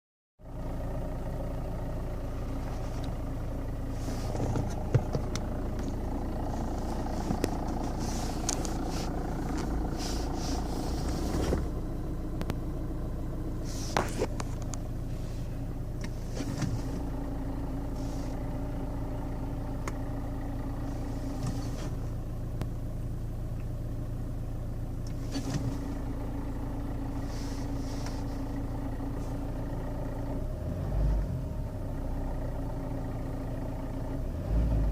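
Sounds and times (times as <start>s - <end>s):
diesel engine idling: 0.4s - 34.9s
clutch clunk: 1.8s - 12.9s, 13.6s - 22.8s, 24.9s - 30.3s
sharp engine knocks: 4.4s - 5.4s.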